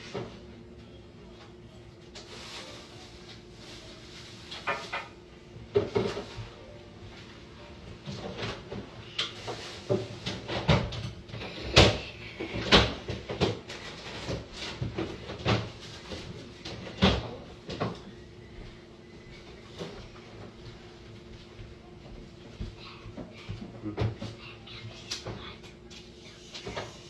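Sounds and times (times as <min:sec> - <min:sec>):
household knocks and clatters: 0:04.6 - 0:06.4.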